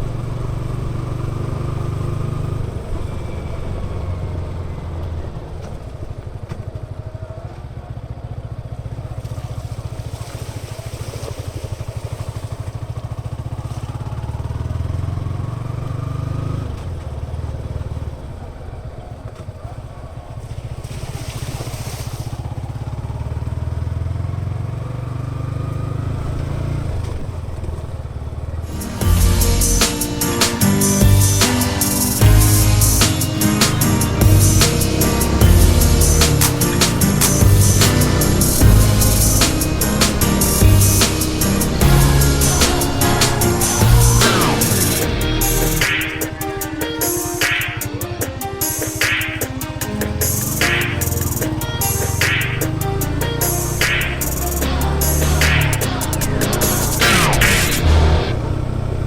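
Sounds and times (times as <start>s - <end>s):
motorcycle engine under load: 0.0s - 10.0s, 11.9s - 20.8s, 22.4s - 48.7s
short bursts of hiss: 28.7s - 47.9s.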